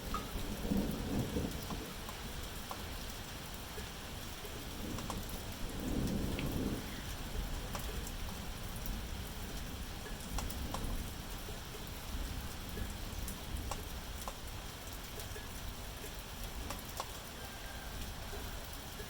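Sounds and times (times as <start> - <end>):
distant thunder rumble: 0.0 - 3.1, 4.0 - 14.7
steady rain falling: 0.0 - 19.0
drops ticking on a surface: 1.2 - 2.9, 3.7 - 5.4, 7.7 - 8.4, 9.6 - 10.9, 12.7 - 17.2.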